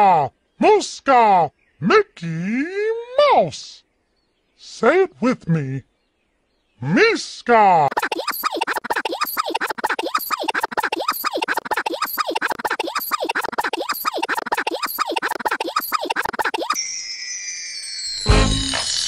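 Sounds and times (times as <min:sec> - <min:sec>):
stuttering glitch effect: 0:07.9 - 0:16.8.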